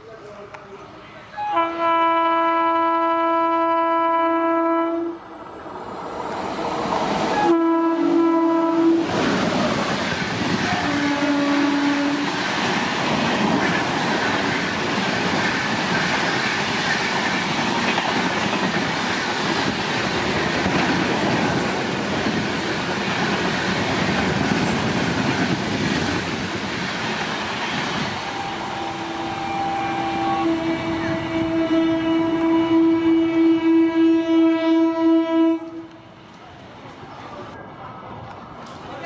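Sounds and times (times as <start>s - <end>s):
train horn: 1.4s - 5.2s, 7.3s - 9.2s, 10.6s - 12.4s, 28.2s - 36.0s
train coaches clattering on rails: 5.8s - 31.8s.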